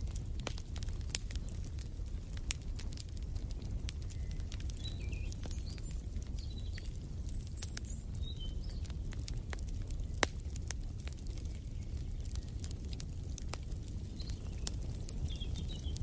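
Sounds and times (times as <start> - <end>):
wood fire crackling: 0.0 - 16.0
faint bird chirps: 4.0 - 8.9.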